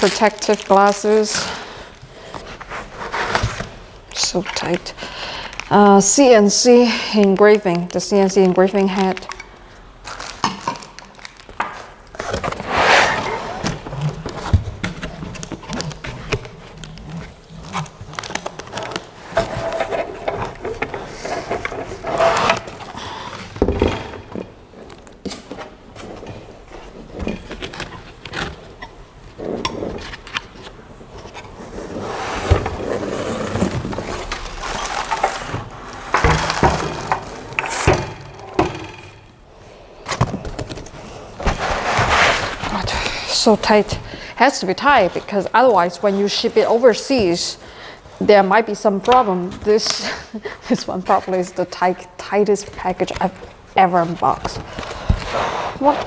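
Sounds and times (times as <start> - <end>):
packaging scraping and rustling: 0.0 - 6.1, 8.7 - 38.6, 40.0 - 47.4.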